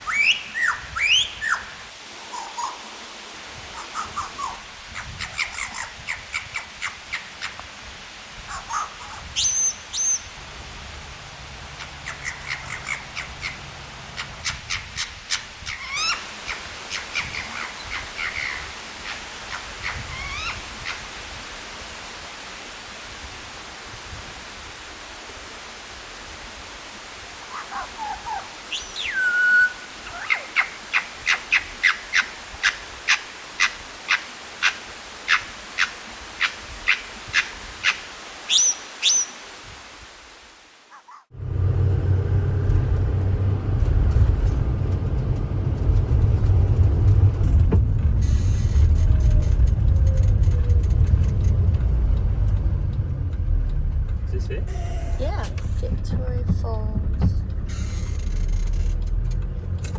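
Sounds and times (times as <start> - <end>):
lyrebird singing: 0.0 - 2.9, 3.8 - 7.6, 8.5 - 10.4, 11.6 - 21.1, 27.5 - 39.4.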